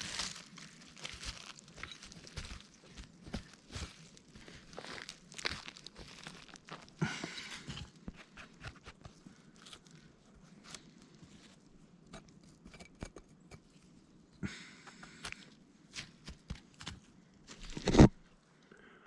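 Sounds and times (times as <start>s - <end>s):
rustling in wet leaves: 0.0s - 7.7s.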